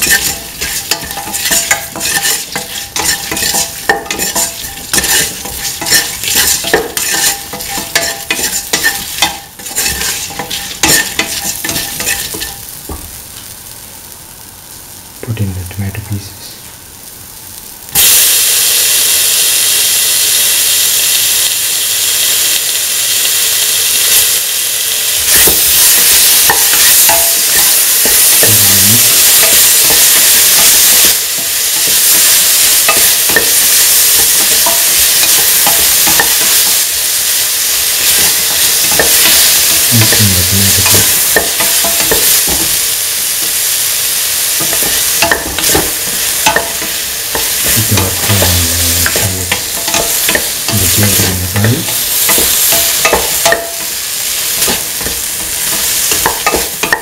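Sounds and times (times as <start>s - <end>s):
spatula stirring in pan: 0.0s - 12.8s, 25.3s - 57.0s
vegetables sizzling in hot oil: 0.0s - 57.0s.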